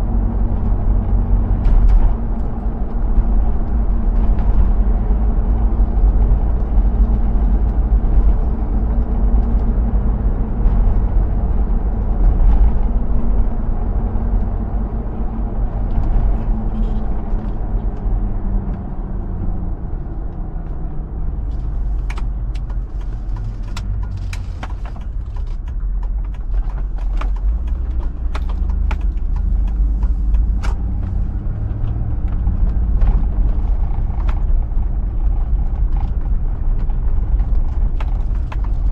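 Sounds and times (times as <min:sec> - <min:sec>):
road rumble: 0:00.0 - 0:38.9
sharp clicks and knocks: 0:21.5 - 0:38.9.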